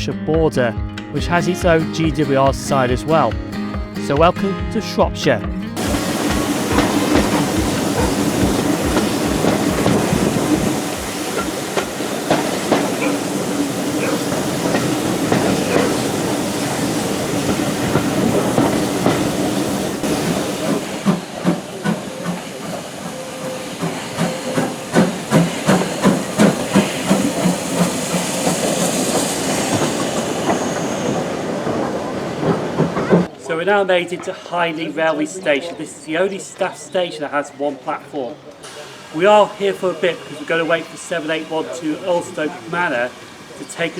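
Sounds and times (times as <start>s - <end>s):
hiss of steam: 5.8s - 32.9s, 38.6s - 43.9s
train wheels clicking over rail joints: 5.8s - 33.4s.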